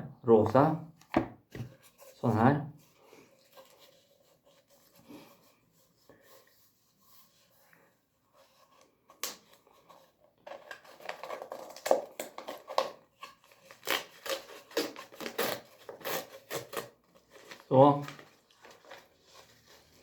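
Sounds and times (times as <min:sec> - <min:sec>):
paper rustling: 0:08.3 - 0:20.0.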